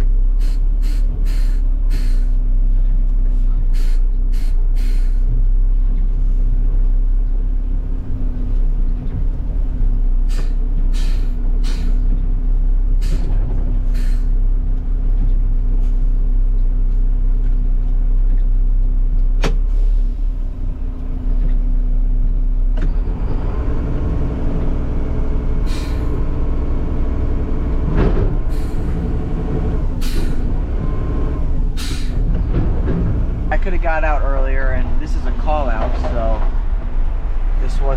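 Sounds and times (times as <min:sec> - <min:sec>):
diesel engine humming: 0:00.0 - 0:37.9
short air hisses: 0:00.4 - 0:02.3, 0:03.8 - 0:05.2, 0:10.3 - 0:12.0, 0:13.9 - 0:14.3, 0:25.7 - 0:26.1, 0:31.8 - 0:32.2.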